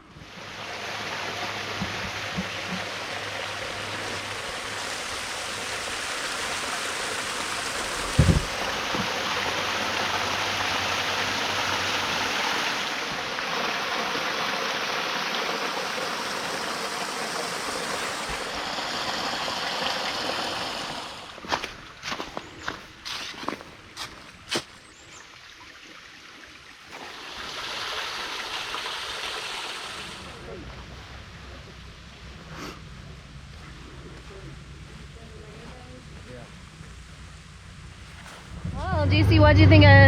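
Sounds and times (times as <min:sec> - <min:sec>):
waterfall rushing: 0:00.4 - 0:21.5
thump: 0:08.0 - 0:09.1.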